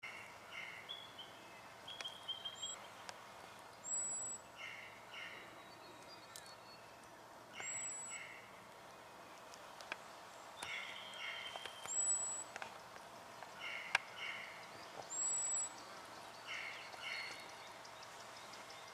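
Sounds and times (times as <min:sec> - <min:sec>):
doubled bird chirps: 0:07.6 - 0:08.4, 0:10.6 - 0:12.5
high drawn-out bird whistles: 0:10.7 - 0:12.4, 0:15.1 - 0:15.8.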